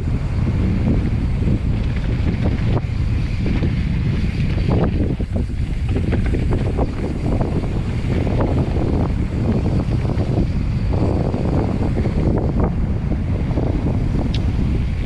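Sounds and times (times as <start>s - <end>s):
tyres rumbling on dirt: 0.0s - 15.0s
wind buffeting microphone: 0.0s - 15.0s
bike knocks and rattles: 0.8s - 12.6s.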